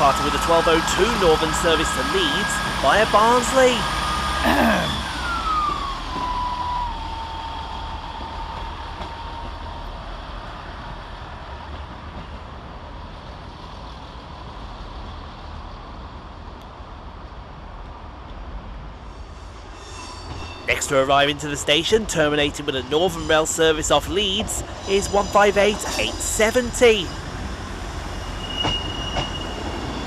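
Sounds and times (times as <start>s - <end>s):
train whining tone: 0.0s - 10.9s, 19.0s - 30.0s.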